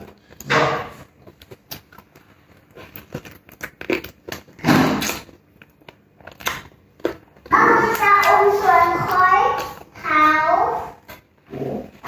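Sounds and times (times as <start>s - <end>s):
wet chewing and lip smacks: 1.1s - 8.0s.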